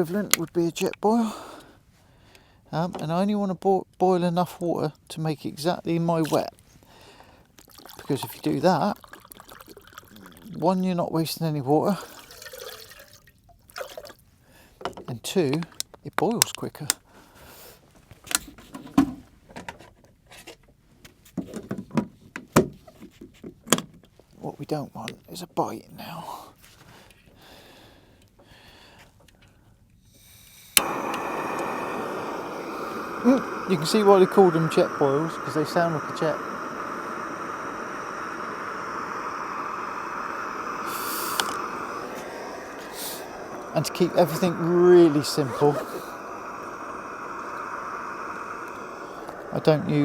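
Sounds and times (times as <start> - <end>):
gas stove burner rushing: 0.0 - 1.7, 30.1 - 50.0.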